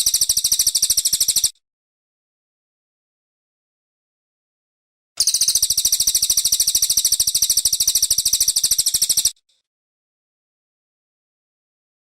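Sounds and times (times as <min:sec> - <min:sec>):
songbird rapid trill: 0:00.0 - 0:01.6, 0:05.2 - 0:09.6.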